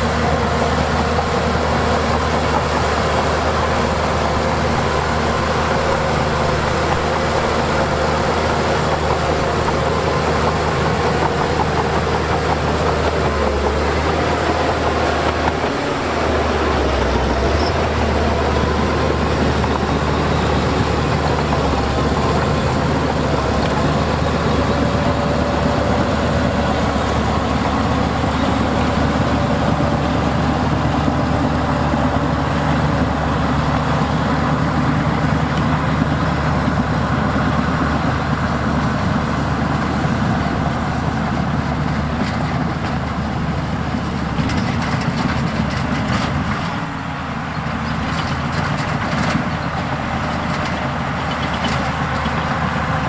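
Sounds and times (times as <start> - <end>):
heavy diesel machinery running: 0.0 - 53.0.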